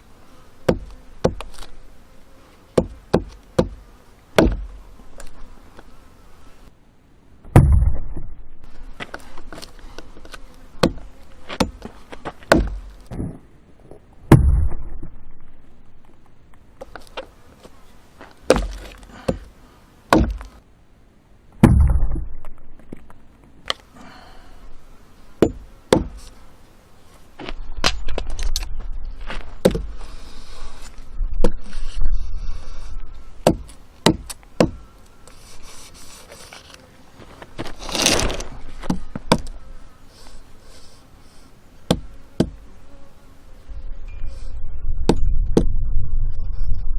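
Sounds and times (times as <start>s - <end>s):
blade chopping firewood: 0.6s - 1.7s, 2.8s - 3.8s, 4.4s - 4.8s, 10.8s - 13.2s, 14.3s - 14.8s, 18.4s - 19.5s, 20.1s - 20.6s, 21.6s - 22.2s, 25.4s - 26.2s, 29.6s - 29.9s, 33.4s - 34.8s, 37.7s - 39.5s, 41.9s - 42.6s.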